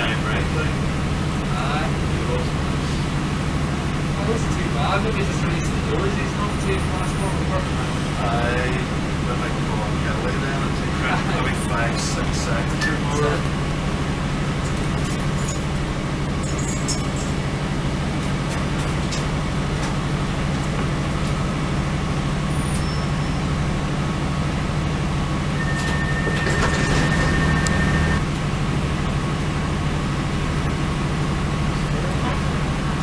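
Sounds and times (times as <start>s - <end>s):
diesel train running: 0.0s - 33.0s
thin high whine: 25.5s - 28.3s.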